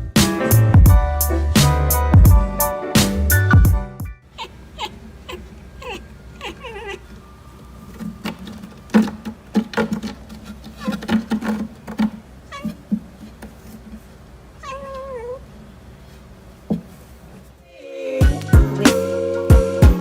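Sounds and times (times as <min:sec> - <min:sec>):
cat meowing: 0:04.4 - 0:07.2, 0:12.5 - 0:12.9, 0:14.6 - 0:15.5
short knocks and thumps: 0:08.0 - 0:14.0, 0:16.6 - 0:17.0.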